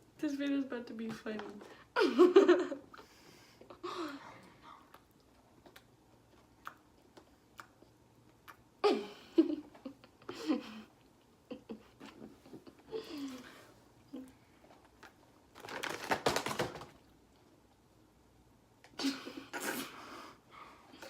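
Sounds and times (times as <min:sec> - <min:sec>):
snack packaging crinkling: 0:14.8 - 0:17.1.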